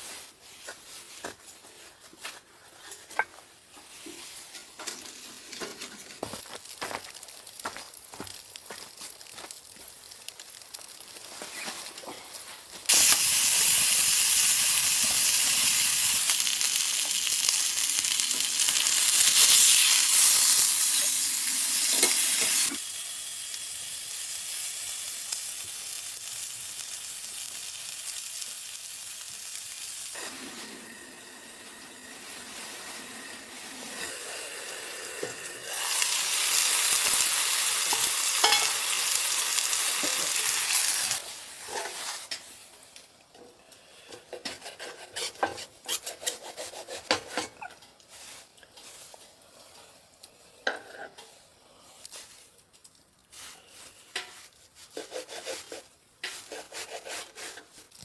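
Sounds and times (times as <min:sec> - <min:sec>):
food sizzling in frying pan: 0:03.8 - 0:42.8.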